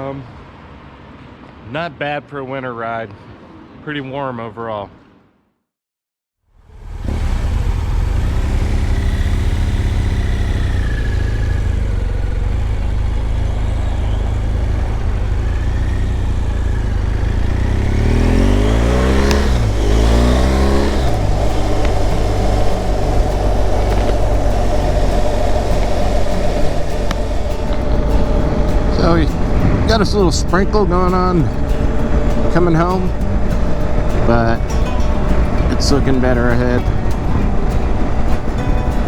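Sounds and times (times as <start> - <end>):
motorcycle engine: 6.6 - 39.0
wind and road rumble: 6.6 - 39.0
crossing pitch sweeps: 6.7 - 39.0.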